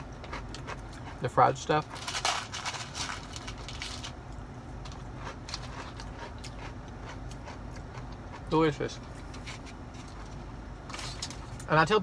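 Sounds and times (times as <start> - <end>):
crunching fried food: 0.0 - 11.7
soft chewing clicks: 4.3 - 9.3.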